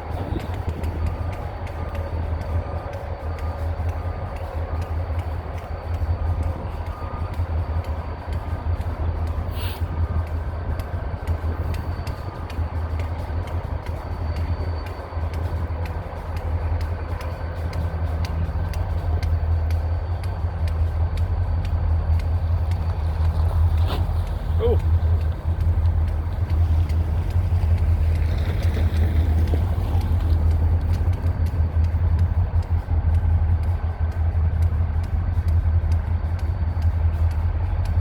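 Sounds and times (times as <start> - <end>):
diesel locomotive idling: 0.0 - 38.0
brief hiss: 9.5 - 9.8.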